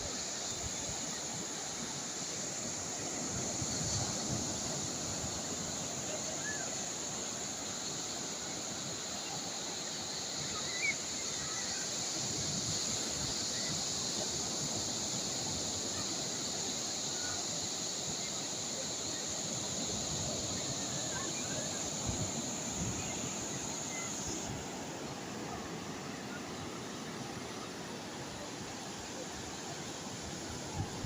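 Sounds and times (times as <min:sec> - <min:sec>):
calm sea waves washing: 0:00.0 - 0:31.0
high-pitched hiss: 0:00.0 - 0:31.0
faint bird chirps: 0:07.9 - 0:12.0.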